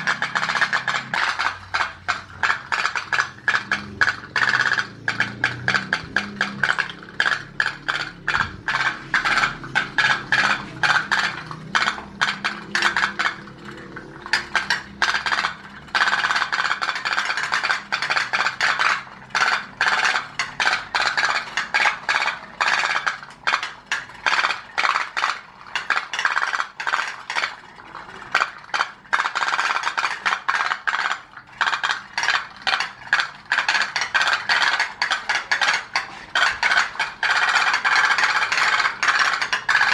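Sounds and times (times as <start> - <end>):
pop-pop boat engines rattling: 0.0 - 39.9.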